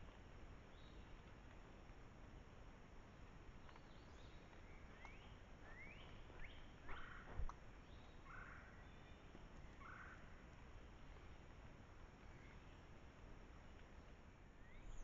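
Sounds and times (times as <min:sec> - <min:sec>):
low background hiss: 0:00.0 - 0:15.0
bird chirping: 0:03.7 - 0:07.3, 0:14.6 - 0:15.0.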